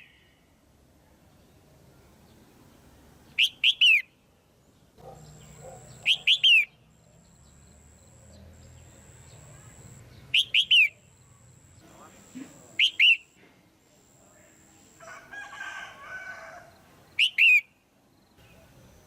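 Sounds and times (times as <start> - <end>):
bird calling sweeping notes: 3.4 - 4.1, 5.4 - 6.9, 8.6 - 11.2, 12.5 - 13.4, 17.2 - 17.7
faint high whine: 5.2 - 15.6.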